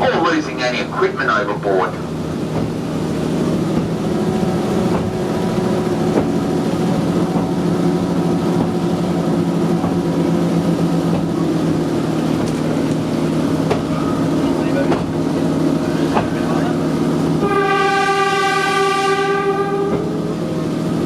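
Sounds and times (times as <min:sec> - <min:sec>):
diesel tram engine droning: 0:00.0 - 0:21.0.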